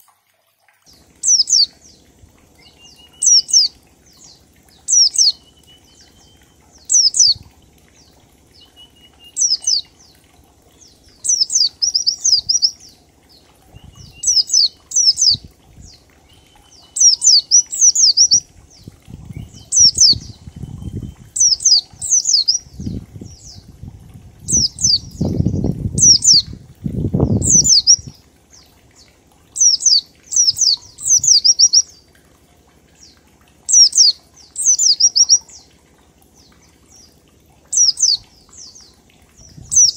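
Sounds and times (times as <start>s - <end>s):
bird whistling song: 1.2s - 1.7s, 2.6s - 7.4s, 8.6s - 9.9s, 11.0s - 12.9s, 13.7s - 15.4s, 16.2s - 18.4s, 19.2s - 23.6s, 24.5s - 26.5s, 27.2s - 28.1s, 29.6s - 31.9s, 33.7s - 35.6s, 37.7s - 38.8s, 39.5s - 39.9s.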